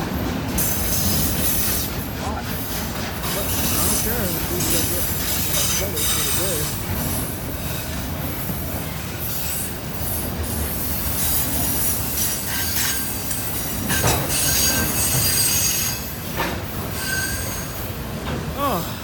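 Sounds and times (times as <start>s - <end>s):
train wheels rumbling on rails: 0.0s - 19.0s
wheel squeal: 17.0s - 17.7s.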